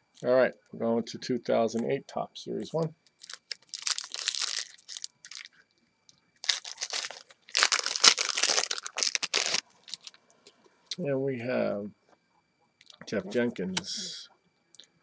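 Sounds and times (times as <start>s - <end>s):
wrapper tearing and crinkling: 3.2s - 5.5s, 6.4s - 10.2s.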